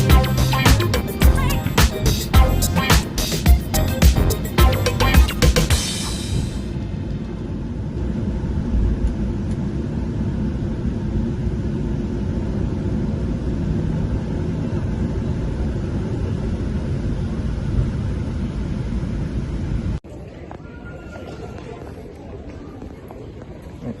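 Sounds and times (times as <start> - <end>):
airliner cabin rumble: 5.7 - 20.6.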